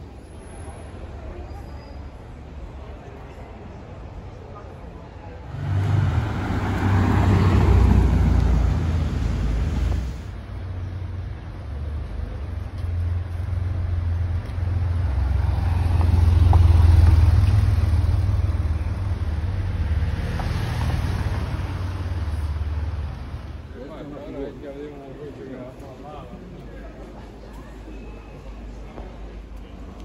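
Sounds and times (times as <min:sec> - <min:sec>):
car engine passing: 0:05.4 - 0:10.4, 0:13.7 - 0:23.6
flat-six car engine driving past: 0:05.5 - 0:10.3.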